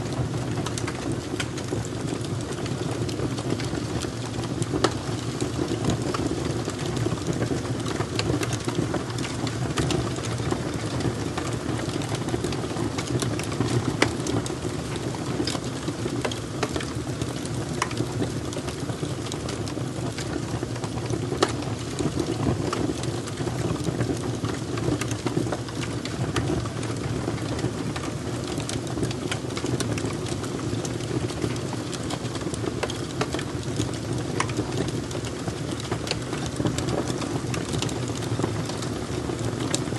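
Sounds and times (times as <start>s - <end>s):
fire crackling: 0.1s - 39.9s.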